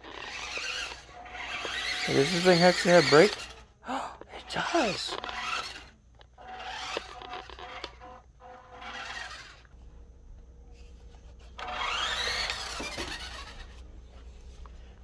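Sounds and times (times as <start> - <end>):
electric motor and gears whining: 0.0 - 15.0
tyres scrubbing on floor: 1.6 - 3.4.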